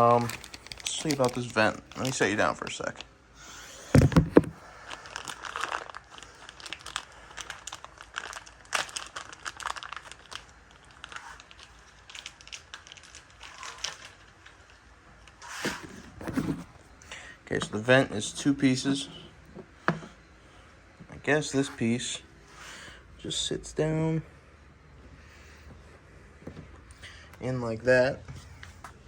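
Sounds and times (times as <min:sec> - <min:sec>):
plastic packaging crinkling: 0:00.0 - 0:03.1, 0:04.0 - 0:17.0
thump: 0:04.0 - 0:04.6.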